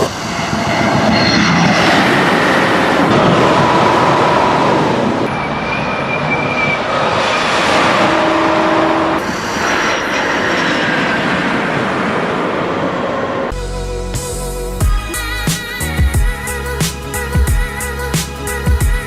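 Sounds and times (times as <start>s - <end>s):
high-speed train rushing: 0.0s - 13.6s.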